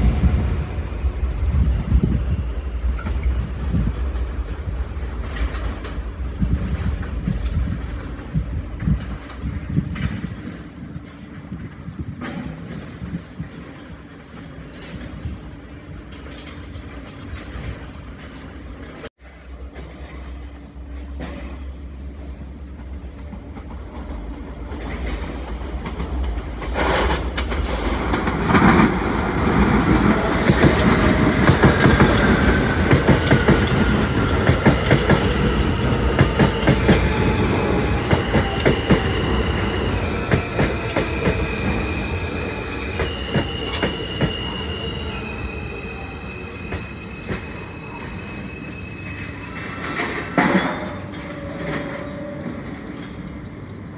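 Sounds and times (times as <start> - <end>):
train wheels clattering over joints: 24.8 - 53.4
high wheel squeals: 28.0 - 53.6.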